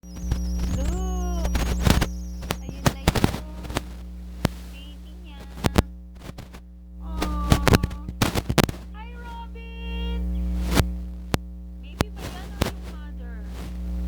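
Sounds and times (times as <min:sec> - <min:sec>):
birds gliding calls: 0:00.0 - 0:03.7
electrical hum: 0:00.0 - 0:14.0
sharp clicks and taps: 0:00.2 - 0:04.6, 0:05.4 - 0:06.6, 0:07.2 - 0:08.9, 0:12.0 - 0:13.0.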